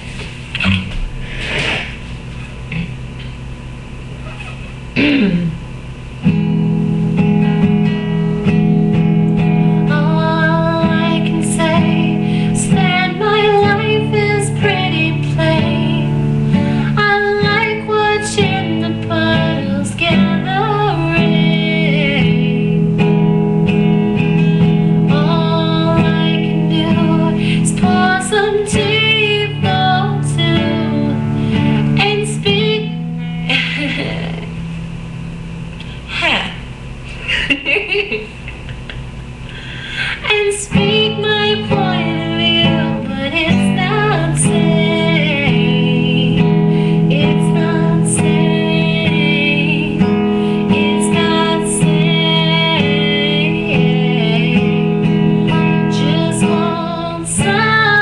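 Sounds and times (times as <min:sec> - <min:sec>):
guitar strumming chords: 0:04.2 - 0:35.7, 0:38.3 - 0:58.0
woman singing: 0:09.4 - 0:23.2, 0:24.6 - 0:34.5, 0:40.2 - 0:58.0.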